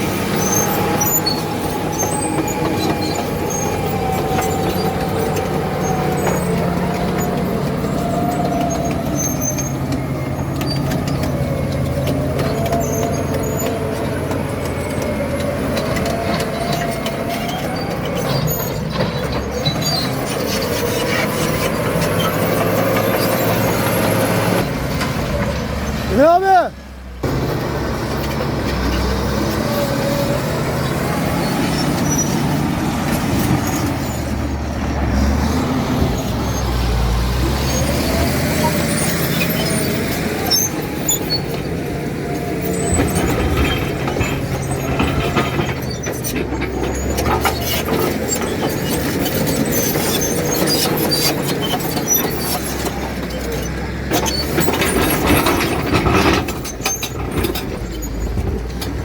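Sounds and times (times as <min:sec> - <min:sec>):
bulldozer diesel engine running: 0:00.0 - 0:59.0
metal clanks and knocks: 0:35.0 - 0:59.0.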